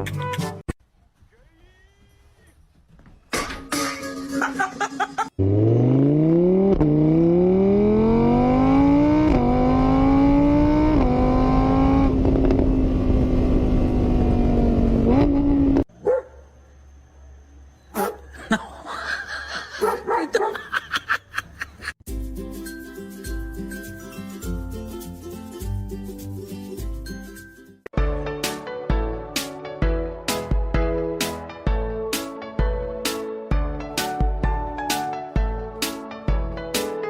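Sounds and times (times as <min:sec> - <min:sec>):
car engine accelerating through gears: 0:05.4 - 0:15.8.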